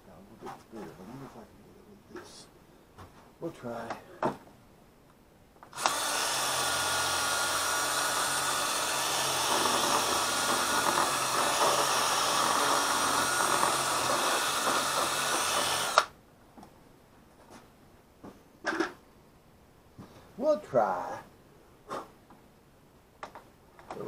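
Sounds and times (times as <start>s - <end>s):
electric drill drilling fiberglass: 5.8s - 16.1s.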